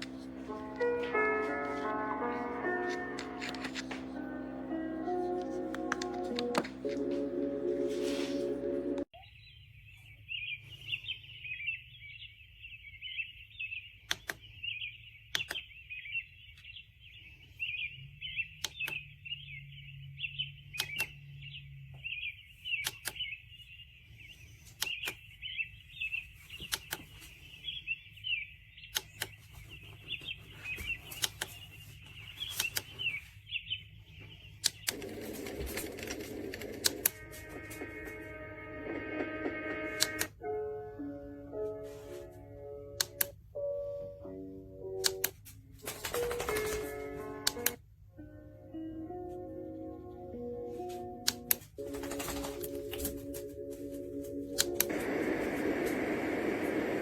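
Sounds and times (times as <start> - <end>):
music from small speaker: 0.0 - 9.1, 36.3 - 42.8
sharp clicks: 14.1 - 14.5, 15.3 - 15.7, 20.8 - 21.1, 34.6 - 37.2.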